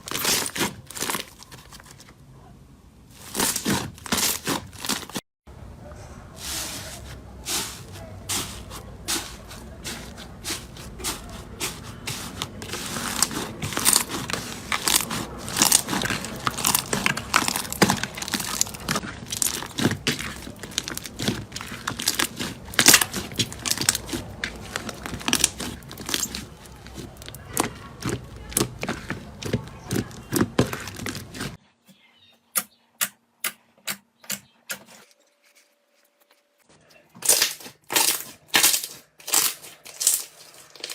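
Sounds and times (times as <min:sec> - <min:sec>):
slime crackling and popping: 0:00.0 - 0:01.6, 0:11.0 - 0:31.6, 0:37.2 - 0:40.9.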